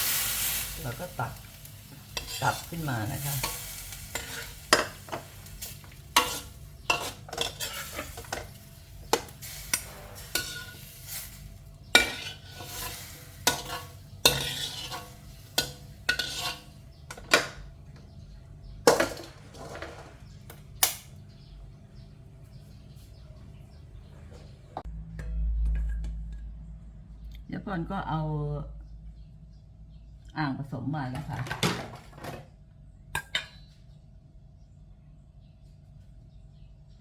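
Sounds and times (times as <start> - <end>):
utensil clinking against cooking pot: 1.0 - 18.1, 33.2 - 33.7.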